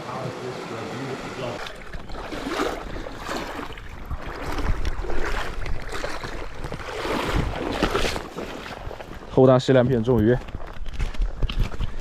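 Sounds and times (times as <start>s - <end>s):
creek water running: 0.0s - 10.7s
water splashing: 0.5s - 10.0s
wind buffeting microphone: 1.6s - 12.0s.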